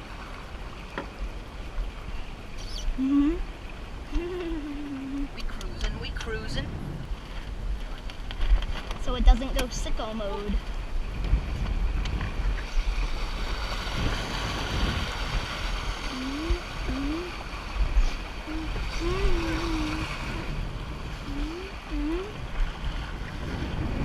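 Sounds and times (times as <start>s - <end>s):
water splashing along hull: 0.0s - 24.0s
wind buffeting microphone: 0.0s - 24.0s
rising voice-like tones: 2.8s - 3.5s.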